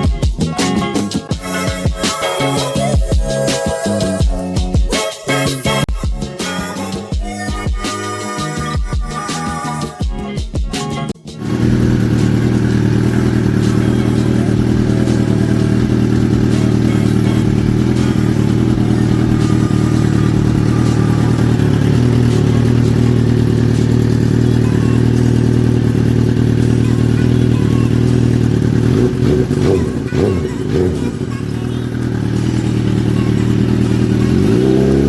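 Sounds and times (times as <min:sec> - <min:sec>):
background music: 0:00.0 - 0:35.0
motorcycle engine running steadily: 0:11.4 - 0:35.0.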